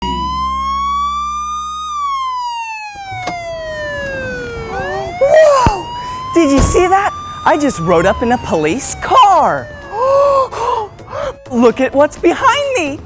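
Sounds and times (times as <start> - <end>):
wavering siren tones: 0.0 - 11.5
police siren wailing: 0.0 - 11.9
low engine hum: 3.1 - 10.0.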